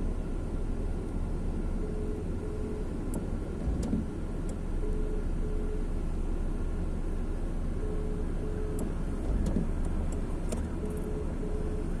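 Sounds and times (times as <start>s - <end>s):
road traffic rumble: 0.0s - 12.0s
short beeps: 4.8s - 5.9s, 7.8s - 8.9s, 10.8s - 11.9s.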